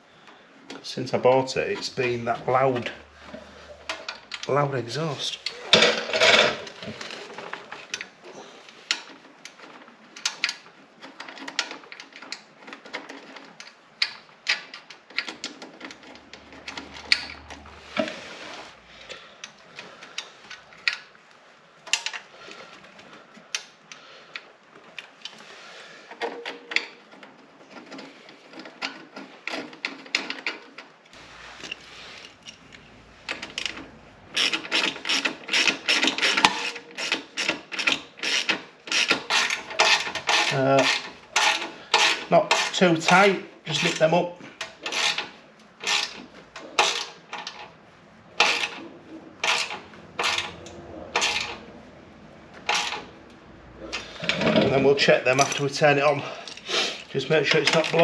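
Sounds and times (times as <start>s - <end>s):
ratchet wrench clicking: 34.4s - 42.7s.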